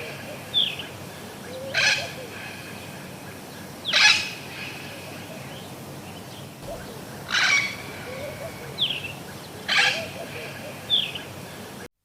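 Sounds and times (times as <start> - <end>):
faint bird chirps: 6.6 - 11.7
parrot screeching: 7.2 - 8.6, 9.7 - 10.1.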